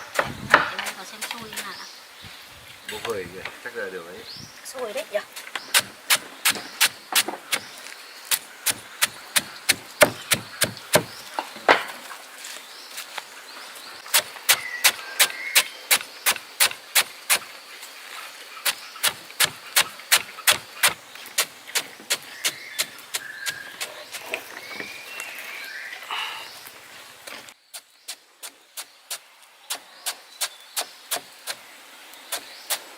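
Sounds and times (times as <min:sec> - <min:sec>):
sharp knocking strokes: 0:05.4 - 0:11.4, 0:14.1 - 0:17.6, 0:18.6 - 0:24.9.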